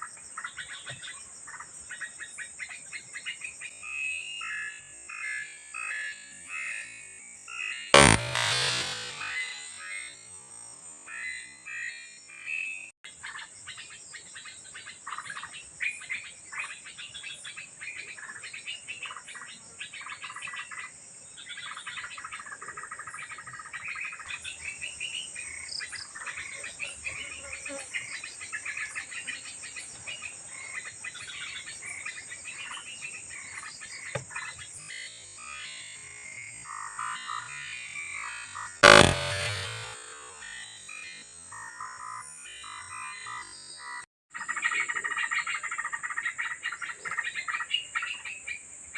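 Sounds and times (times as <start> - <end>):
loud sharp bang: 8.0 - 9.6, 38.8 - 40.3
high insect drone: 8.0 - 11.4, 38.8 - 40.4.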